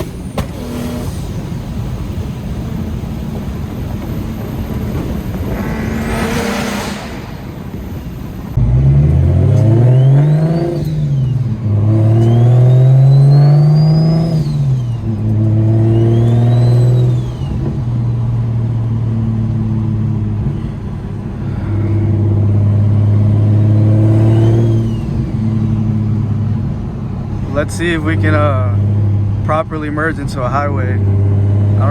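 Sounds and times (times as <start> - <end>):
car engine accelerating: 0.0 - 31.9
turbo whistle: 12.2 - 15.0.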